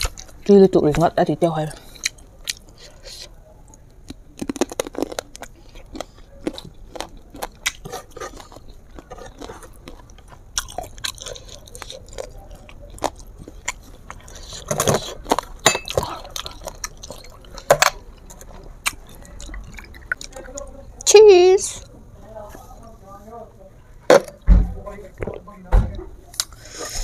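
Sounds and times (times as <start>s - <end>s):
person chewing with mouth clicks: 1.8s - 21.1s.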